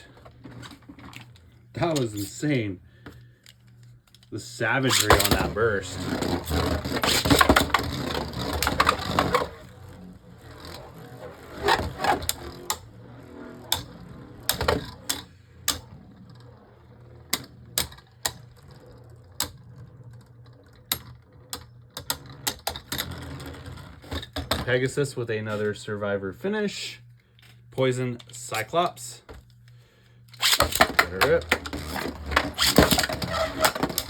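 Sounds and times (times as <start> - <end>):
plastic spinning tops rattling: 3.2 - 24.5, 30.4 - 34.0.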